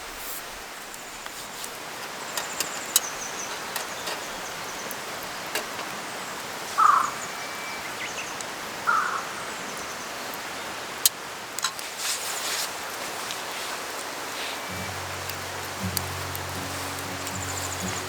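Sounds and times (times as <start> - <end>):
sharp crackles: 11.0 - 18.0
river rushing: 13.8 - 18.0.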